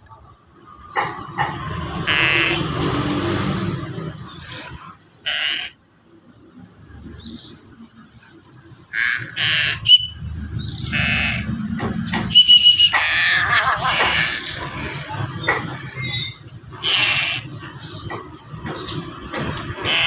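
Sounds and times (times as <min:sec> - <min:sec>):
young crow harsh begging calls: 0:05.2 - 0:05.8, 0:08.9 - 0:09.9, 0:10.9 - 0:11.5, 0:12.9 - 0:14.6, 0:16.8 - 0:17.5.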